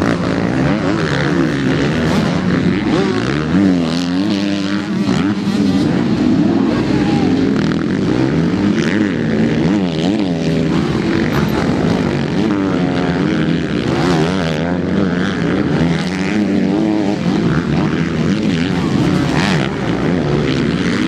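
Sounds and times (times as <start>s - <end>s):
motocross bike engines revving: 0.0s - 21.0s.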